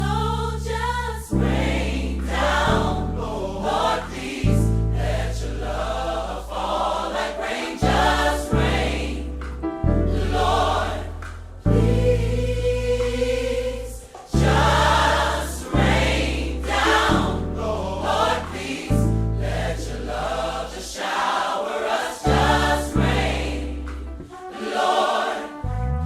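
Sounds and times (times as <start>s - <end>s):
choir singing gospel music: 0.0s - 25.9s
held low chords: 1.3s - 5.7s, 7.8s - 20.5s.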